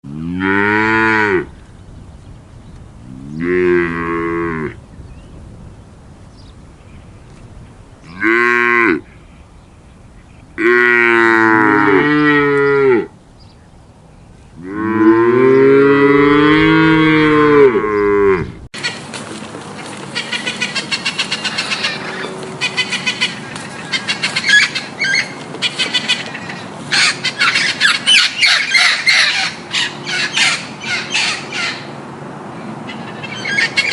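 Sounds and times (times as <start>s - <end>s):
cattle mooing: 0.1s - 1.5s, 3.1s - 4.8s, 8.0s - 9.0s, 10.6s - 13.1s, 14.6s - 18.6s
chorus of many birds calling: 17.9s - 33.9s.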